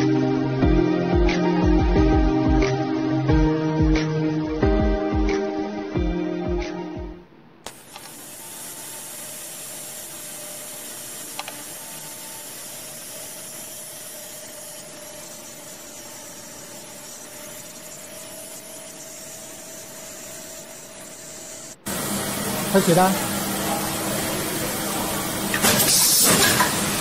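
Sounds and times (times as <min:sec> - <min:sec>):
machine hissing whir: 0:07.6 - 0:27.0.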